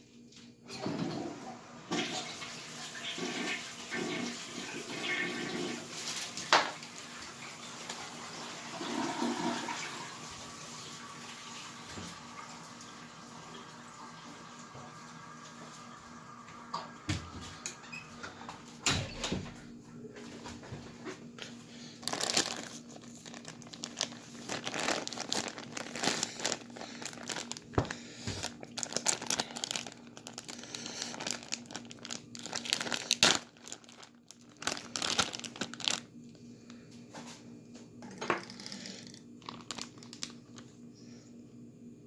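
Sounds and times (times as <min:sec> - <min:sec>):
plastic bag crinkling: 0:21.8 - 0:36.2, 0:38.4 - 0:40.7.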